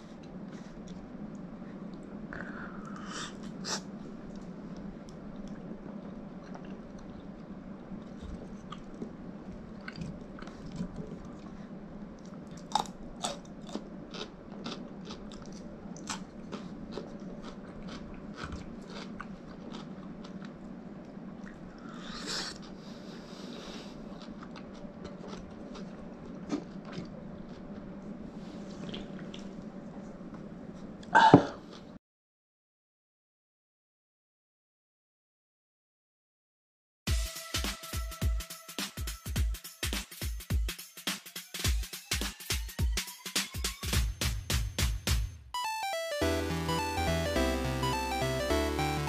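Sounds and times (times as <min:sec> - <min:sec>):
steady low hum: 0:00.0 - 0:32.0
chewing crunchy fish: 0:04.2 - 0:22.8, 0:23.8 - 0:28.1.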